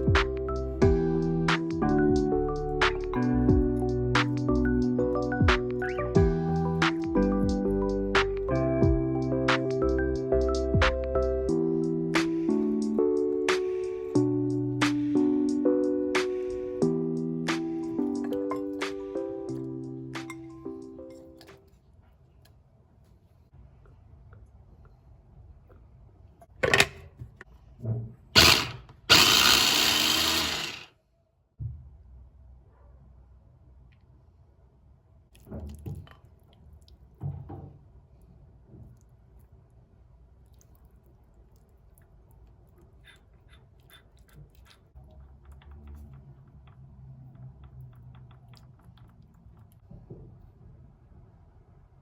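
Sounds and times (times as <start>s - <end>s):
kitchen appliance motor running: 28.4s - 30.9s.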